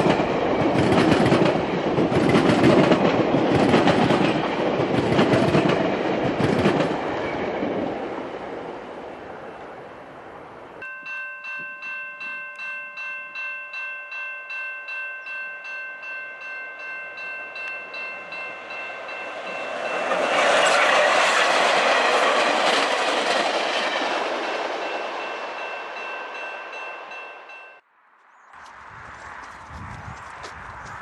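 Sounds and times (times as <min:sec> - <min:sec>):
train passing: 0:00.0 - 0:31.0
railway crossing bell ringing: 0:10.8 - 0:20.8, 0:23.9 - 0:27.9.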